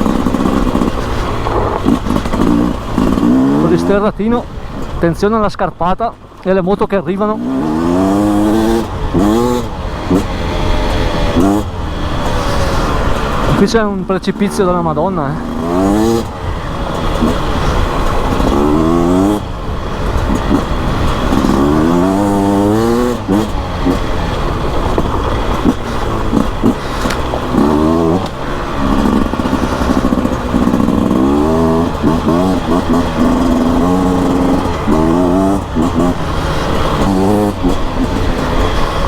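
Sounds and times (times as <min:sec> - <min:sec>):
two-stroke motorcycle engine revving: 0:00.0 - 0:39.0.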